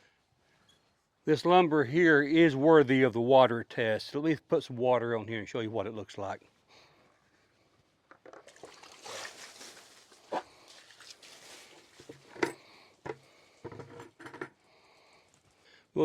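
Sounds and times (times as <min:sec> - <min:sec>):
water splashing over wood: 0:08.3 - 0:12.2.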